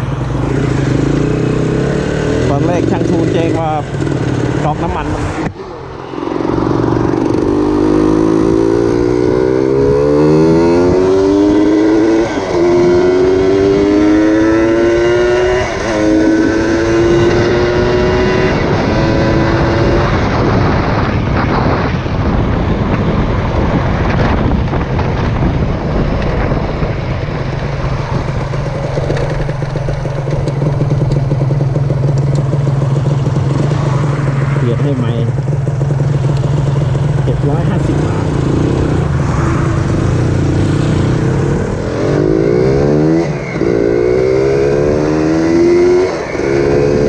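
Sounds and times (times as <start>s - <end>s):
motorcycle engine accelerating: 0.0s - 47.0s
rushing noise: 37.2s - 47.0s.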